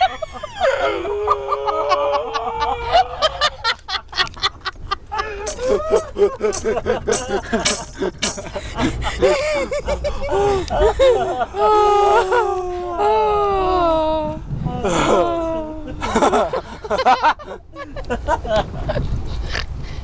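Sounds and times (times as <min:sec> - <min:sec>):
chattering vocal sounds: 0:05.3 - 0:09.3.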